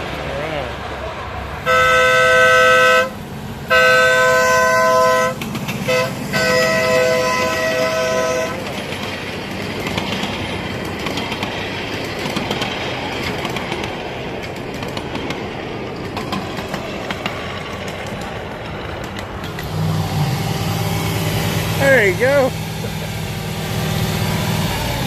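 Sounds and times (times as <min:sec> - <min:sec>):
miniature train running rumble: 0:00.0 - 0:25.0
train horn blasts: 0:01.6 - 0:08.7.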